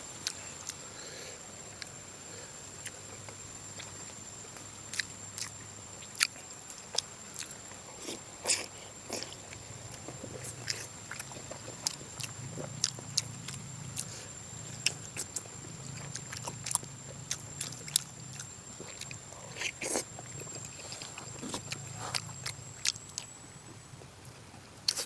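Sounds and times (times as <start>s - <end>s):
person chewing with mouth smacks: 4.9s - 14.1s, 14.8s - 23.3s.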